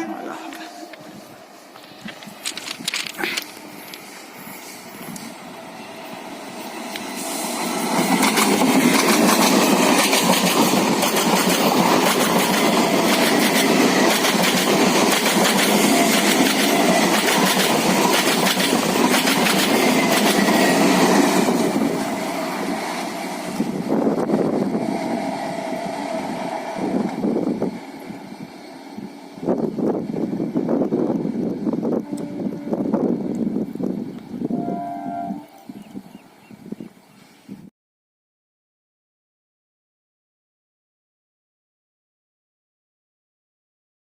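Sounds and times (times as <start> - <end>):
train wheels clattering on rails: 7.7 - 22.4.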